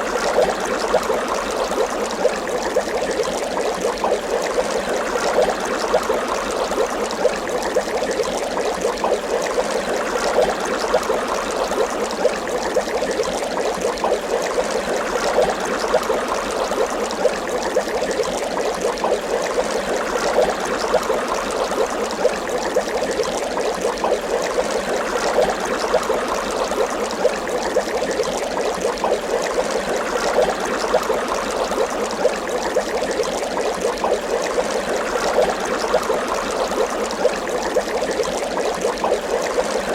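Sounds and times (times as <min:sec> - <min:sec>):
water bubbling: 0:00.0 - 0:39.9.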